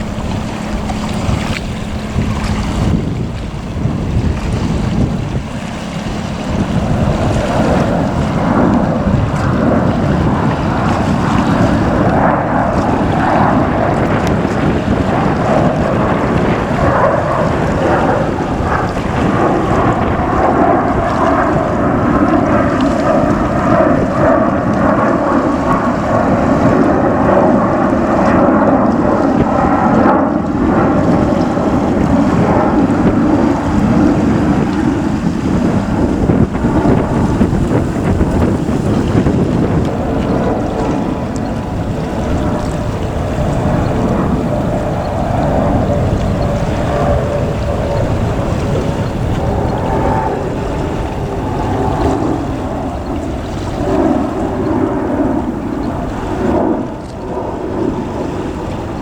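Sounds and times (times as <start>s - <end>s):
jet engines roaring: 0.0s - 59.0s
wind buffeting microphone: 0.0s - 59.0s.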